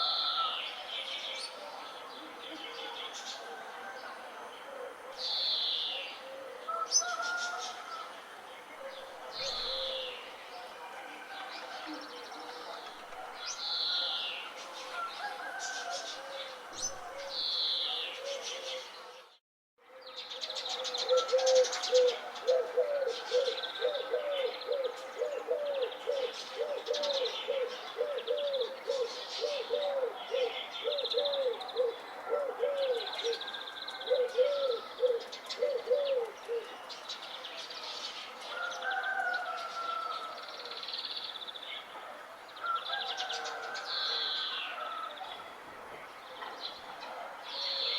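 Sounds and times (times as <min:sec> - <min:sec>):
low cooing call: 0:02.2 - 0:10.4, 0:13.7 - 0:19.0, 0:20.6 - 0:36.9.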